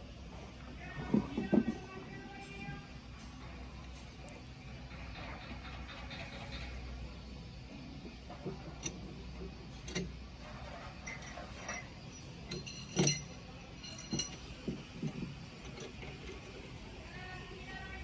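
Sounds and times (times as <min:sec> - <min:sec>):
metal tools clinking: 0:08.1 - 0:16.8
metallic clank ringing: 0:08.5 - 0:16.6.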